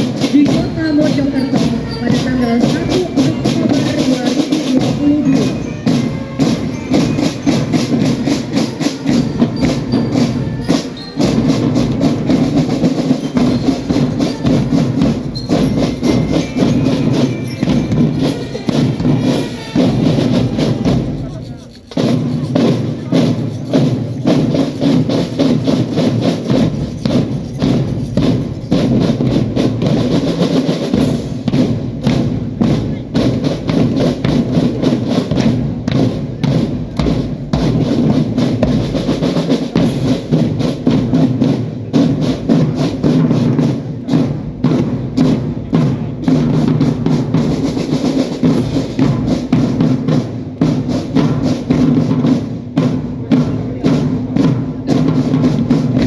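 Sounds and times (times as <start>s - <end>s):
trumpet melody: 0.0s - 29.2s
marching drums beating: 0.0s - 56.0s.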